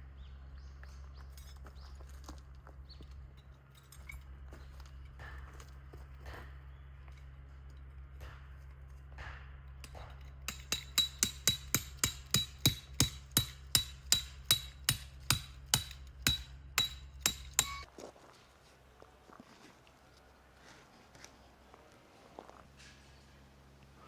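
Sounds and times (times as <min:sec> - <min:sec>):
hammering on metal: 0:09.1 - 0:17.9.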